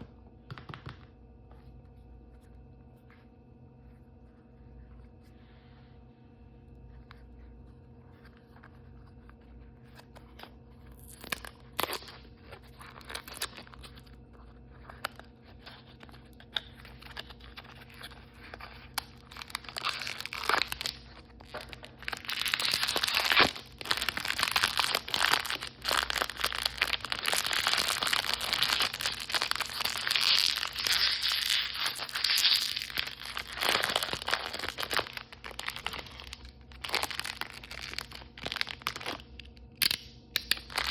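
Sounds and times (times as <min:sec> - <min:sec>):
plastic packaging crinkling and tearing: 0:10.9 - 0:40.9.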